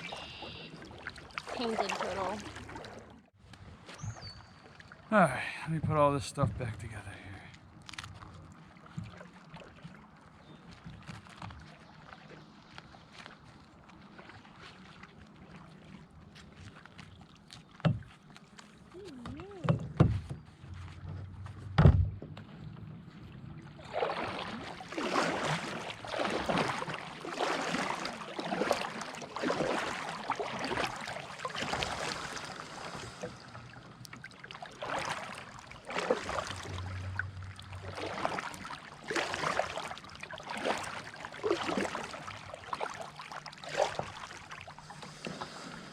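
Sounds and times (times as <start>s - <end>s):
paddle splashing through water: 0.0s - 45.9s
knocks against kayak: 21.6s - 22.4s.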